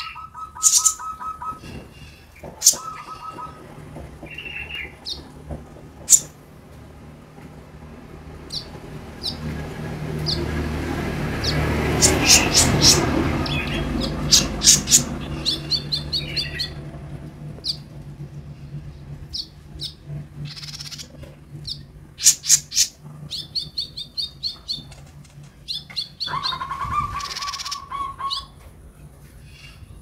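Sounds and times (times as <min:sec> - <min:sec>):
bird chirping: 0:00.0 - 0:03.7, 0:06.1 - 0:06.3, 0:08.5 - 0:10.6, 0:11.4 - 0:16.9, 0:19.2 - 0:25.0, 0:25.6 - 0:28.6
steady low hum: 0:00.0 - 0:30.0.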